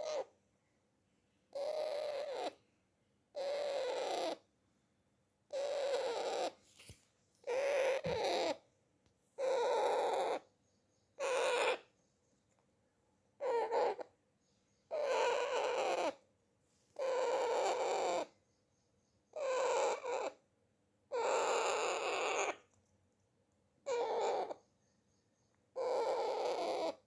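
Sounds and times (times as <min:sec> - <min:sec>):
parrot calling: 0:00.0 - 0:00.3, 0:01.5 - 0:02.6, 0:03.3 - 0:04.5, 0:05.5 - 0:06.6, 0:07.4 - 0:08.6, 0:09.4 - 0:10.5, 0:11.2 - 0:11.9, 0:13.4 - 0:14.1, 0:14.9 - 0:16.2, 0:17.0 - 0:18.4, 0:19.3 - 0:20.4, 0:21.1 - 0:22.6, 0:23.8 - 0:24.6, 0:25.8 - 0:27.0.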